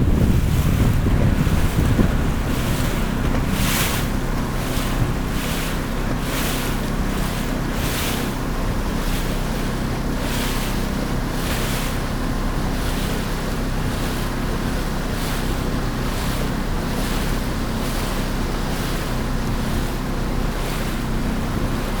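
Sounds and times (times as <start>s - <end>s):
low rumble: 0.0s - 7.5s
hissing splash of waves: 0.0s - 22.0s
water rushing past hull: 0.0s - 22.0s
wind on microphone: 0.0s - 22.0s.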